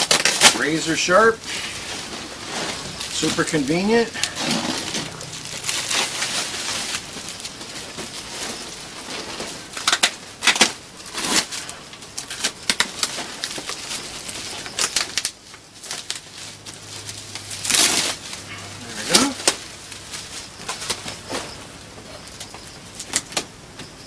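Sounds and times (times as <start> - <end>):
packaging tearing: 0.0 - 21.1
rustling of wrapping and cardboard: 0.0 - 24.0.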